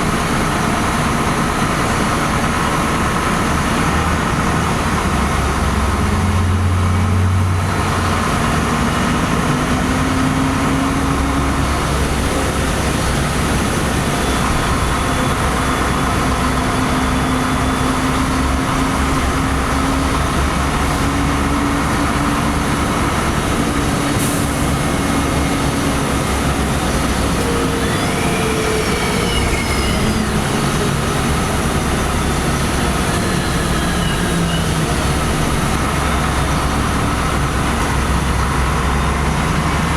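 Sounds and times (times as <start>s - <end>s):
bus engine and road rumble: 0.0s - 39.9s
short high squeaks: 27.5s - 30.4s.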